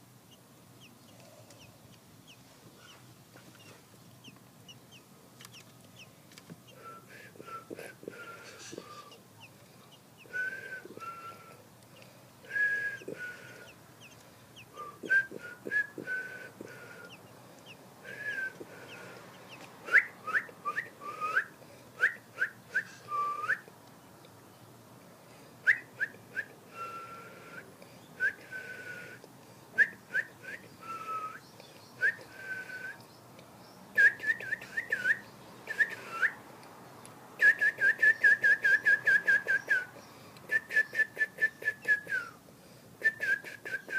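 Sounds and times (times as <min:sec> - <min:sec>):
bird whistling and chirping: 0:06.7 - 0:09.2, 0:10.2 - 0:11.6, 0:12.5 - 0:17.2, 0:18.1 - 0:19.0, 0:19.9 - 0:23.6, 0:34.0 - 0:36.4, 0:40.5 - 0:42.4.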